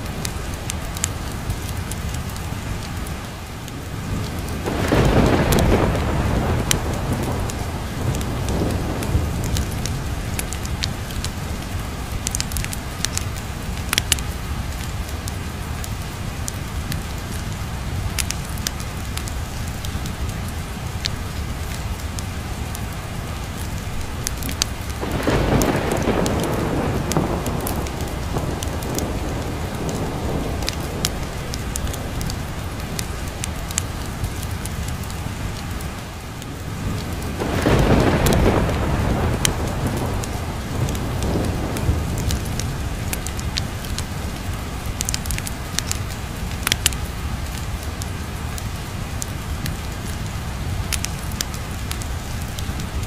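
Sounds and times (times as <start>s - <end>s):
heavy rain: 0.0s - 53.0s
sharp crackles: 0.0s - 53.0s
thunder rumbling: 3.6s - 20.6s, 23.6s - 47.8s.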